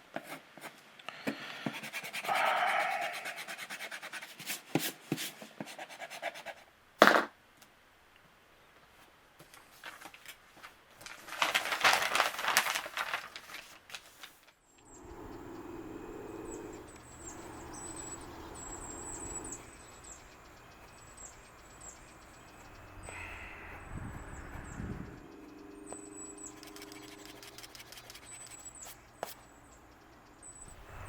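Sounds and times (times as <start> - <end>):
scratchy rustling and crackling: 9.4 - 14.5, 26.5 - 29.4
birds chirping: 14.7 - 31.0
low steady hum: 14.7 - 31.0.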